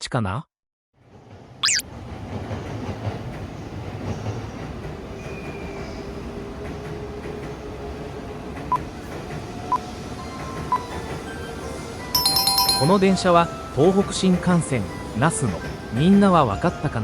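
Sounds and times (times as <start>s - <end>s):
train running: 1.0s - 17.0s
short electronic beeps: 1.6s - 1.8s.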